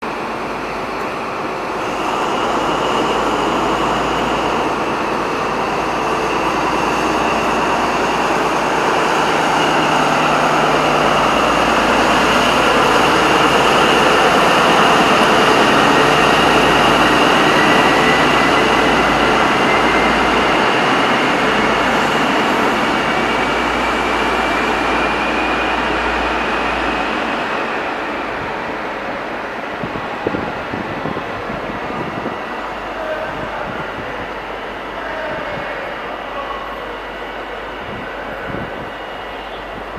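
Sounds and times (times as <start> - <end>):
diesel engine high whine: 0.1 - 28.8.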